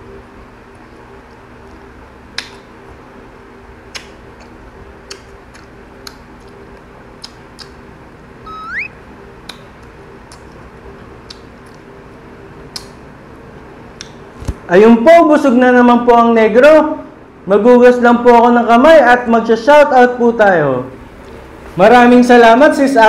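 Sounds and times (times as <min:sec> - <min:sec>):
mouth clicks: 0:07.2 - 0:07.8, 0:08.5 - 0:10.6, 0:12.7 - 0:13.0
low hum: 0:08.4 - 0:09.4
short rising squeak: 0:08.5 - 0:09.0.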